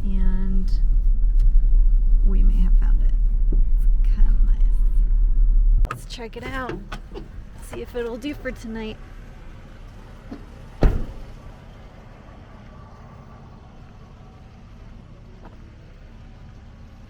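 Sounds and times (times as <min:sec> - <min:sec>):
low rumble: 0:00.0 - 0:17.0
vehicle door slamming: 0:10.2 - 0:11.6.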